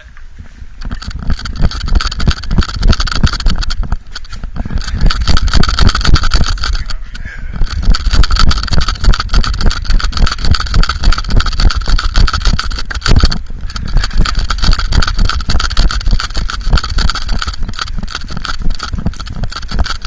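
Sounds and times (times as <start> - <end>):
heavy low rumble: 0.0 - 20.0
rubbing and knocking on microphone: 0.4 - 20.0.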